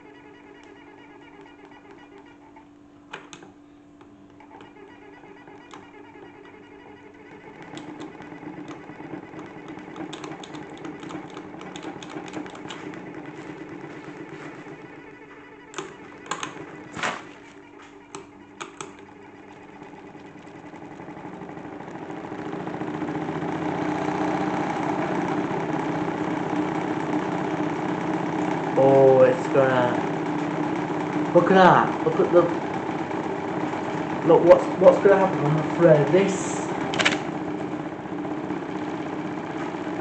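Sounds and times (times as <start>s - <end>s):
toy washing machine motor humming: 0.0s - 40.0s
rattling clicks and knocks: 4.3s - 22.9s, 30.0s - 38.0s.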